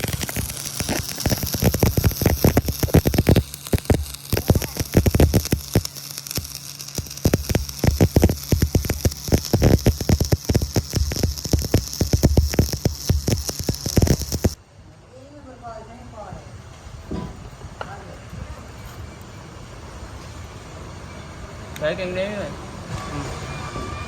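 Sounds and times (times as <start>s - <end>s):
welding arc crackling: 0.0s - 14.6s
low steady hum: 0.0s - 21.8s.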